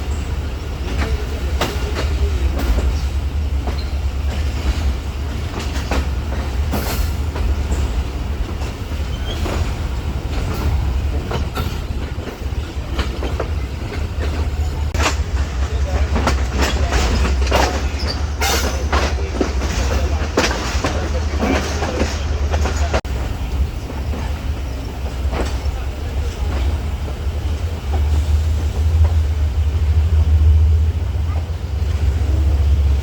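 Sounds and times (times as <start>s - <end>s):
train rumbling on rails: 0.0s - 33.0s
wheels clacking over rail joints: 0.0s - 33.0s.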